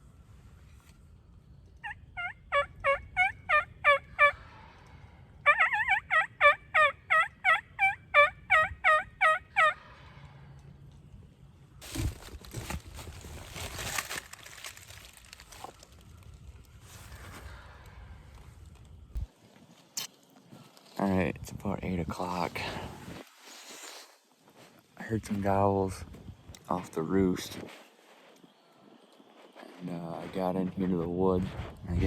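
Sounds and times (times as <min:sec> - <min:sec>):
wild turkey yelping: 0:01.8 - 0:04.8, 0:05.4 - 0:10.1
rough rustling noise: 0:11.8 - 0:32.0.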